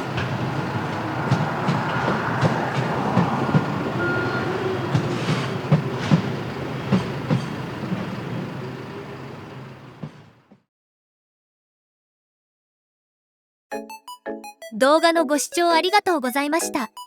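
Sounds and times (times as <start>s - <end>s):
train wheels clickety-clack: 0.0s - 10.6s.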